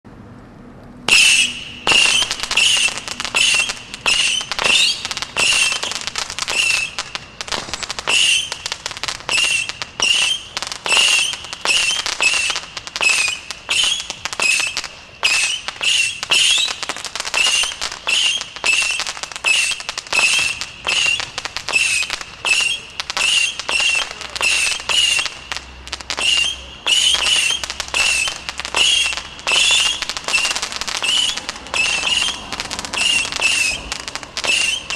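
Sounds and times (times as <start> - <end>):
firework launches whistling: 1.1 - 34.9
firework streamers crackling: 1.1 - 34.9.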